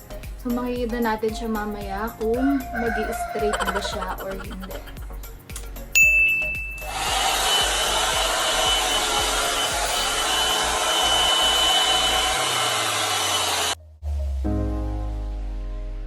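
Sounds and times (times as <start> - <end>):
hair dryer blowing with whine: 6.8 - 13.8.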